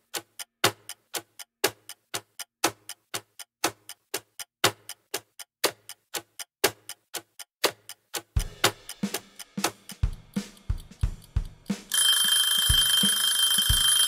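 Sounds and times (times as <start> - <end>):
clock ticking: 0.0 - 14.0.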